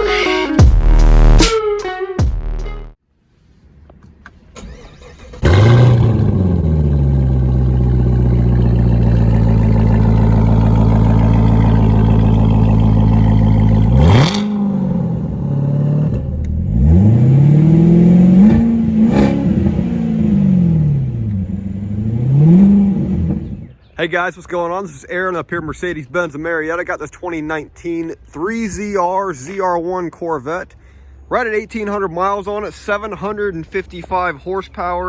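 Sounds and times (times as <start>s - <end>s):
car engine revving: 0.6s - 1.5s, 4.6s - 23.7s
car engine idling: 5.4s - 19.0s.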